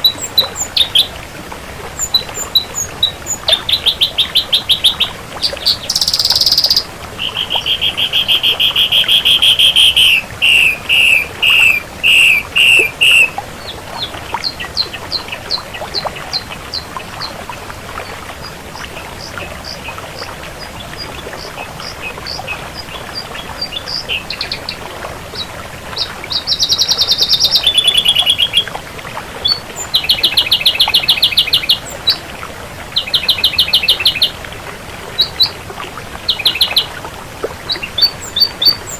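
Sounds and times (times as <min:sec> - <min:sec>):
bird singing buzzy trills: 0:00.0 - 0:01.2, 0:01.9 - 0:16.9, 0:25.4 - 0:28.7, 0:29.4 - 0:32.2.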